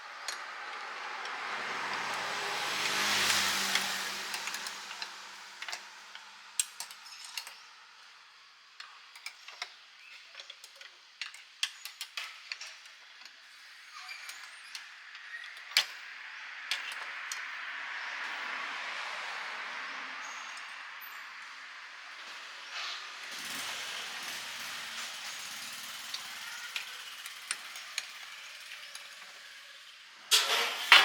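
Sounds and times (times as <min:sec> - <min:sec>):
passing traffic: 0:00.0 - 0:07.5, 0:14.7 - 0:31.0.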